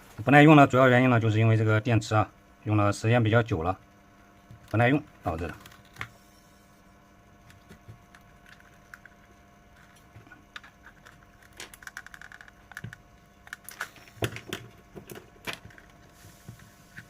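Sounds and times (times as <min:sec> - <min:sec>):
plastic casing clicks and rattles: 0:09.8 - 0:16.0.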